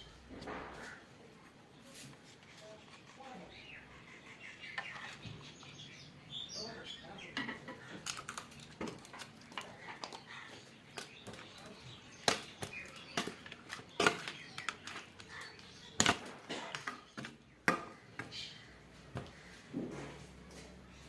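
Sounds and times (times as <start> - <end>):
kitchen utensils and dishes clicking: 11.0 - 18.3.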